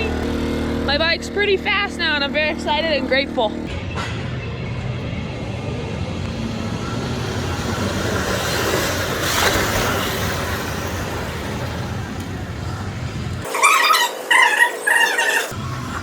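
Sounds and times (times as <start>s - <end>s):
pit bike engines running: 0.0s - 16.0s.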